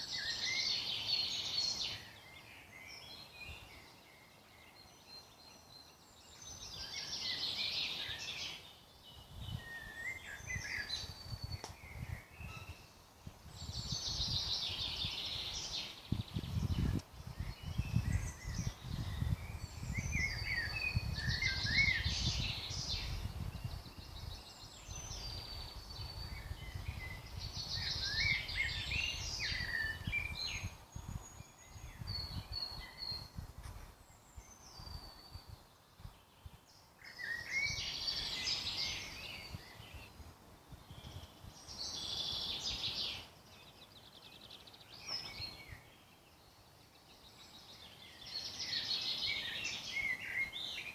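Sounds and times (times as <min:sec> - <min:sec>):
bird trilling song: 0:00.0 - 0:33.4, 0:34.1 - 0:50.9
birds chirping and whistling: 0:00.0 - 0:33.4, 0:34.3 - 0:50.9.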